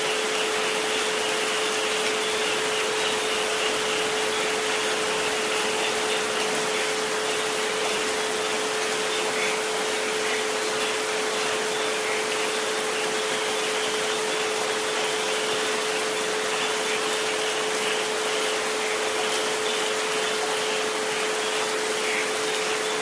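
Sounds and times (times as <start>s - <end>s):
rain hiss: 0.0s - 23.0s.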